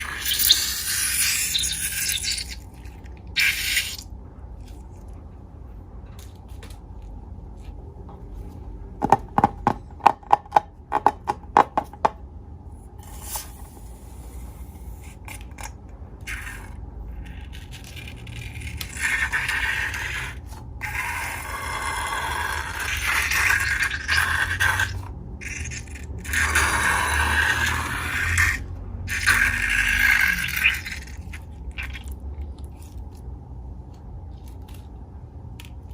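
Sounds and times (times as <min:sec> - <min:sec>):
balloons and slime scraping: 0:00.0 - 0:04.0, 0:13.0 - 0:15.5.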